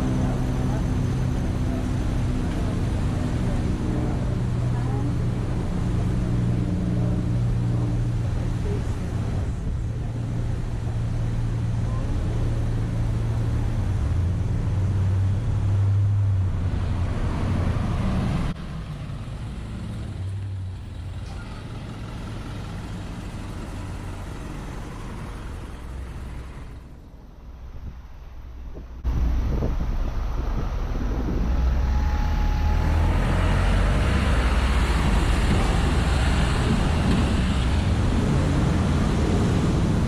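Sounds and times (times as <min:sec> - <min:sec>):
street noise: 0:00.0 - 0:40.0
large vehicle engine idling: 0:18.6 - 0:40.0.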